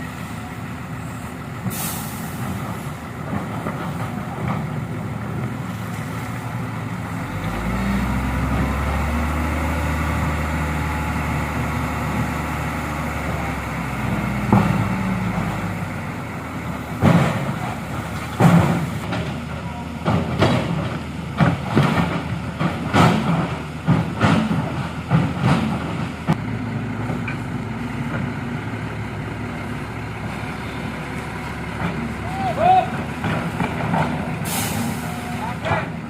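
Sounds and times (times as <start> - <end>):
diesel truck engine running: 0.0 - 36.0.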